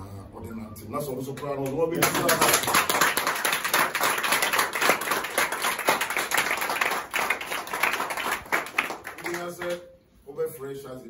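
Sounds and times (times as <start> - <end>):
group of people clapping: 1.6 - 9.9.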